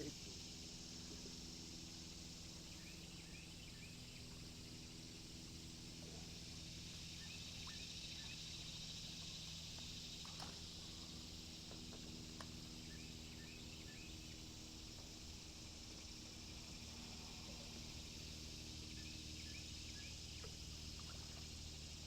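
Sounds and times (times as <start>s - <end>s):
high insect drone: 0.0s - 22.0s
faint bird chirps: 7.0s - 9.2s, 12.8s - 14.4s.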